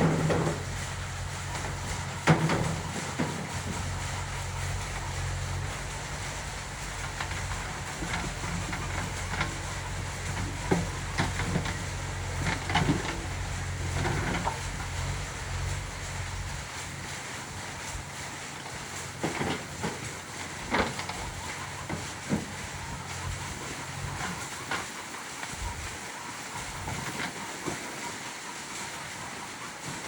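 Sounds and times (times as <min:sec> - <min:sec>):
short knocks and clanks: 0:00.0 - 0:05.1, 0:06.9 - 0:16.1
diesel engine humming: 0:00.0 - 0:25.9.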